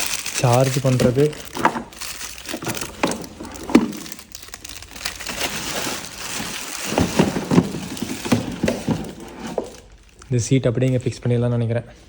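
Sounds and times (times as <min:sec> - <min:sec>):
packaging crinkling and rustling: 0:00.0 - 0:11.2.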